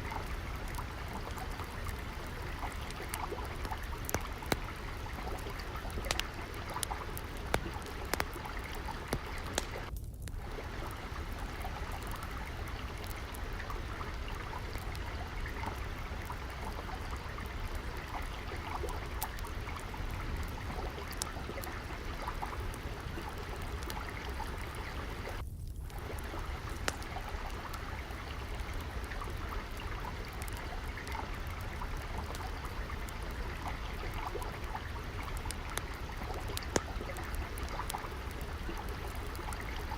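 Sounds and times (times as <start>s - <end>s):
trickling water: 0.0s - 39.9s
wood fire crackling: 0.0s - 39.9s.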